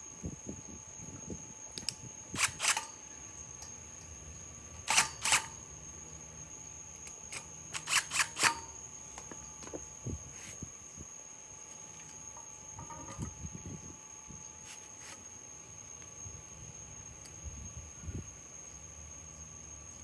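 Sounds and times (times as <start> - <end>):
steady high-pitched whine: 0.0 - 20.0
sharp mechanical clicks: 1.8 - 3.0, 4.8 - 5.6, 7.0 - 8.7.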